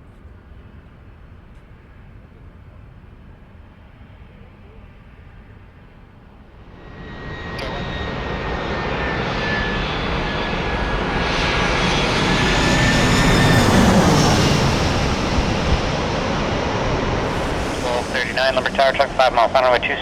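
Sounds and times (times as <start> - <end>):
jet airliner passing: 0.5 - 20.0
engine fan whine: 6.5 - 20.0.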